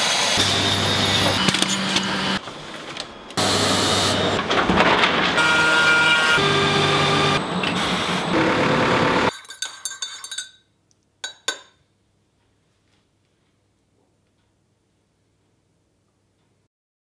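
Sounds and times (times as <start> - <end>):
factory machinery whining: 0.0 - 9.3.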